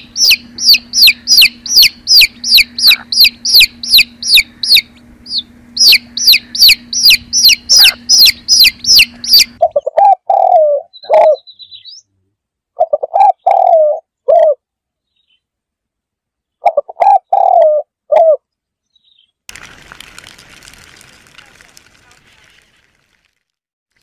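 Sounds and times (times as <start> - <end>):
pigeons cooing: 0.0 - 11.6, 12.8 - 14.6, 16.6 - 18.4
chicks peeping: 0.0 - 12.0.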